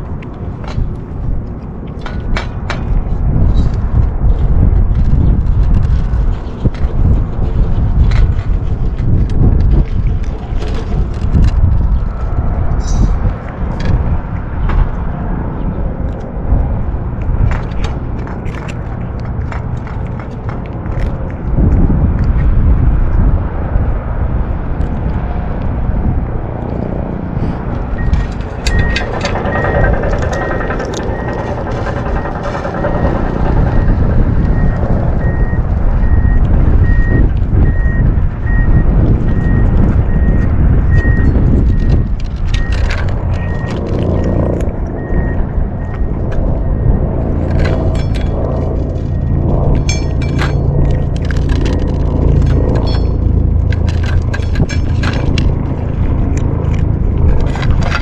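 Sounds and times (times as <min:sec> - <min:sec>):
wind buffeting microphone: 0:00.0 - 0:58.0
small clicks and ticks: 0:17.2 - 0:22.5, 0:27.7 - 0:38.0, 0:40.4 - 0:46.5
reversing alarm beeping: 0:27.9 - 0:53.3.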